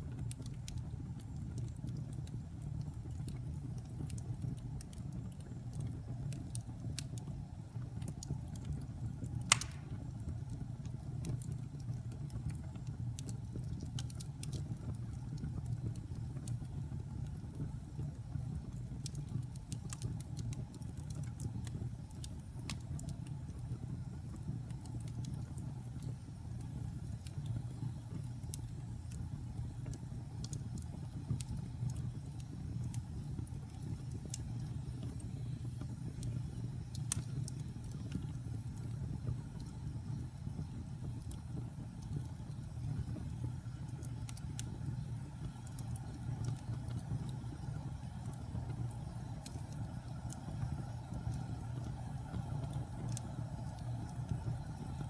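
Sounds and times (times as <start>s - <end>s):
wood fire crackling: 0.0s - 55.0s
sharp pop of fire: 9.4s - 10.3s.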